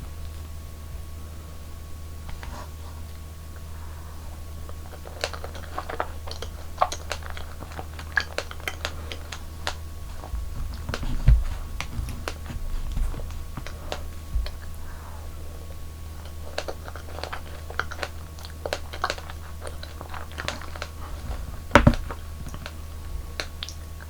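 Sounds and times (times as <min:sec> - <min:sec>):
dull thumps: 0:10.0 - 0:14.7, 0:20.4 - 0:23.4.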